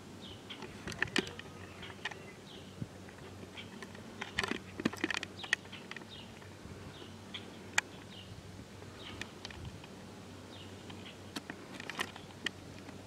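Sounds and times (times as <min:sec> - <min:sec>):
faint low hum: 0:00.0 - 0:13.0
bird chirps: 0:00.2 - 0:02.8, 0:03.4 - 0:03.8, 0:05.3 - 0:09.3, 0:10.5 - 0:11.3.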